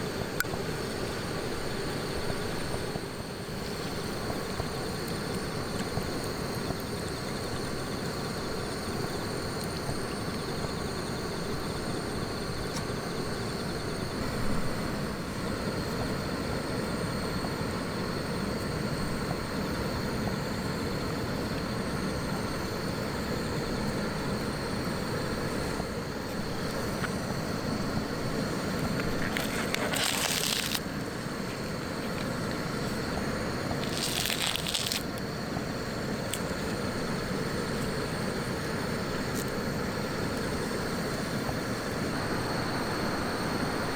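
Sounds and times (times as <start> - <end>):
campfire crackling: 0.0 - 43.9
short hissing bursts: 28.1 - 43.9.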